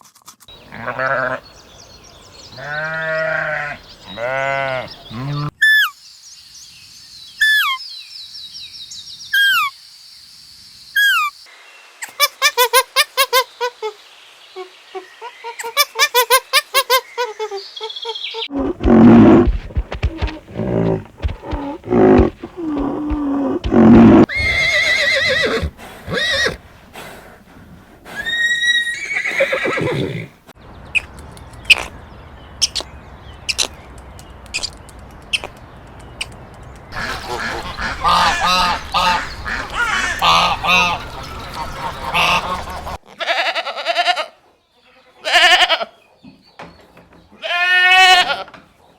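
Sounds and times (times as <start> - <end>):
farm animal calls: 2.6 - 5.9, 18.5 - 27.4, 37.0 - 44.3
horse whinnying: 18.5 - 26.6, 28.1 - 30.3.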